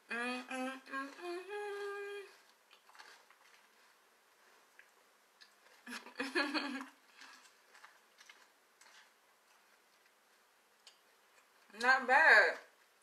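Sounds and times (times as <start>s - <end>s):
person humming: 0.0s - 2.3s
crunching cereal: 2.3s - 5.8s, 6.9s - 10.2s.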